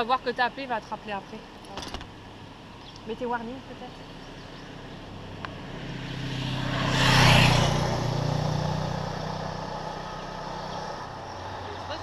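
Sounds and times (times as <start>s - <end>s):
vehicle driving past: 3.6s - 12.0s.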